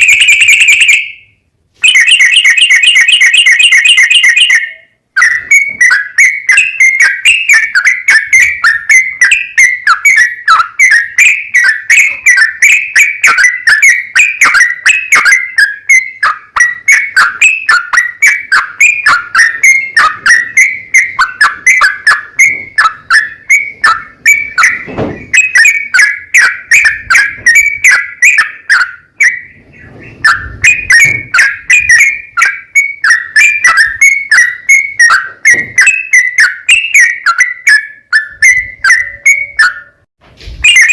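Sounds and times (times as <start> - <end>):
bulbul singing chattering notes: 0.0 - 40.0.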